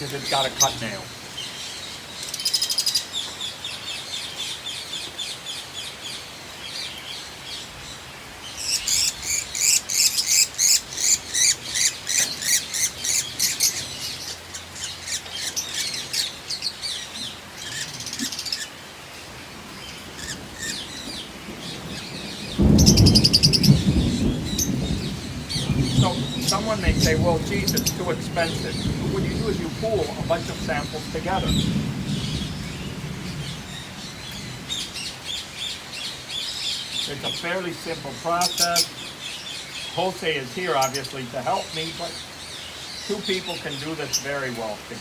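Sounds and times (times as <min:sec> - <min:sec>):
person speaking: 0:00.0 - 0:01.2
birds chirping: 0:00.0 - 0:45.0.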